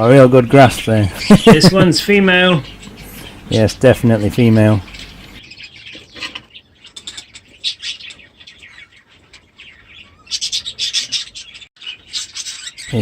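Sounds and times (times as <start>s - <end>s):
budgerigars chirping: 0.2s - 13.0s.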